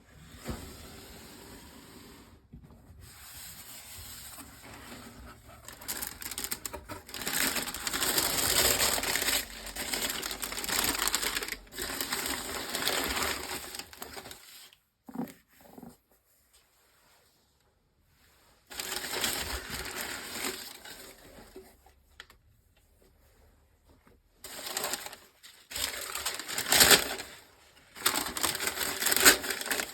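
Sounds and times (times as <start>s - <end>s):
paper crinkling: 4.4s - 15.2s, 18.7s - 22.3s, 24.4s - 29.9s.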